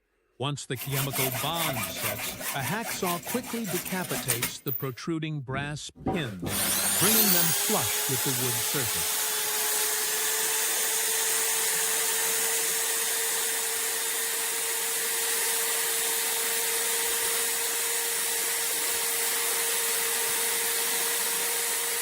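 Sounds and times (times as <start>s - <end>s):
electric power tool running: 6.4s - 22.0s.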